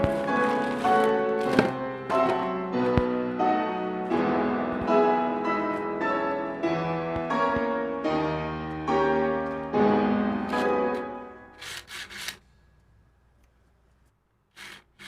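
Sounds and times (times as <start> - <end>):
piano chords music: 0.0 - 11.6.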